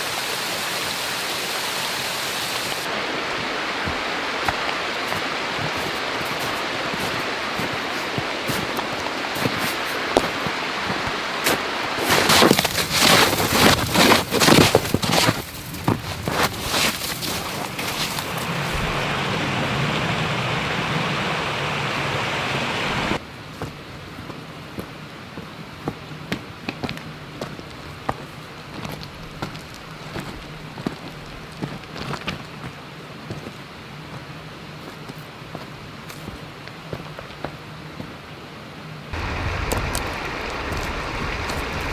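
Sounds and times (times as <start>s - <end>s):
heavy rain falling: 0.0s - 23.2s, 39.2s - 41.9s
low hum: 17.8s - 23.2s, 39.2s - 41.9s.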